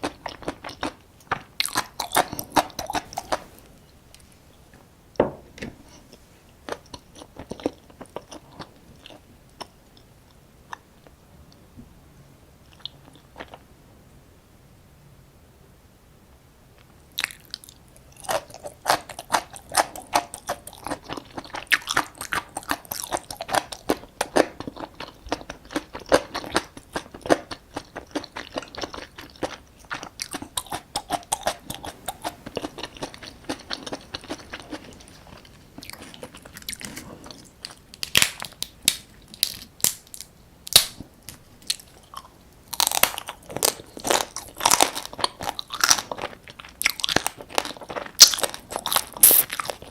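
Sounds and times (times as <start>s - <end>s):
biting and chewing crab: 18.2s - 41.0s.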